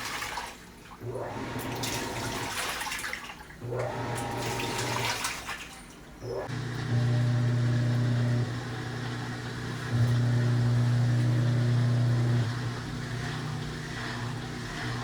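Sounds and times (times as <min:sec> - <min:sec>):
water sloshing in tub: 0:00.0 - 0:06.8
washing machine motor humming: 0:00.0 - 0:15.0.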